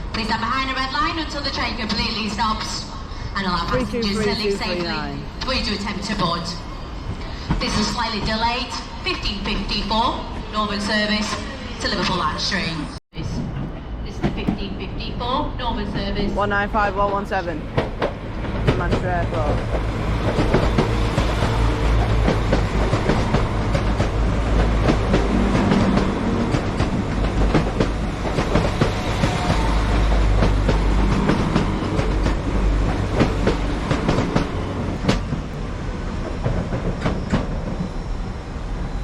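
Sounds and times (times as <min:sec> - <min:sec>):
train engine rumble: 0:00.0 - 0:39.0
wheels clacking over rail joints: 0:15.8 - 0:38.1.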